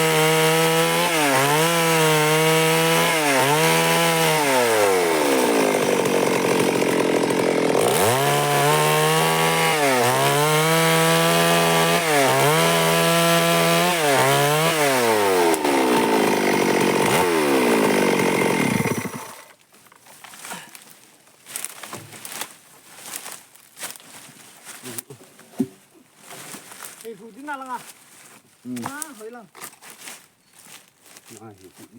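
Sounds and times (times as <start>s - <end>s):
chainsaw cutting wood: 0.0s - 19.6s.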